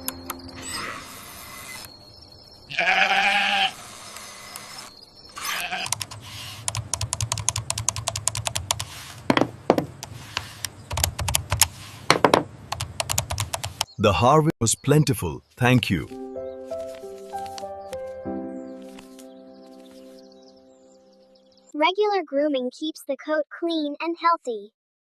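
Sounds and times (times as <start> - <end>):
goat bleating: 2.7 - 3.8, 5.5 - 5.9
sharp clicking and ticking: 5.8 - 8.9, 10.0 - 11.7, 12.7 - 13.9.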